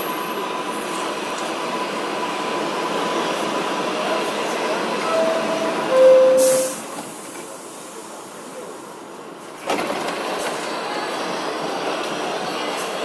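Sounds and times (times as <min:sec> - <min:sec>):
subway train noise: 0:00.0 - 0:13.0
subway door chime: 0:04.8 - 0:07.7.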